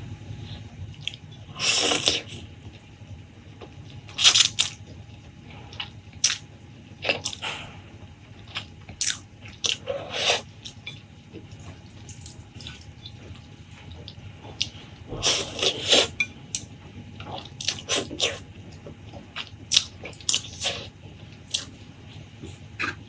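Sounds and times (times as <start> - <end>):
wet chewing and mouth clicks: 5.7 - 6.4, 7.0 - 7.6, 8.4 - 23.0.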